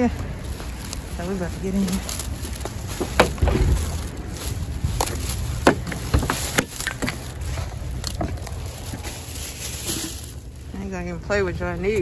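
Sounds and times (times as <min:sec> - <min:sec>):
wind rumble on microphone: 0:00.0 - 0:12.0
handling clicks and knocks: 0:02.0 - 0:10.4.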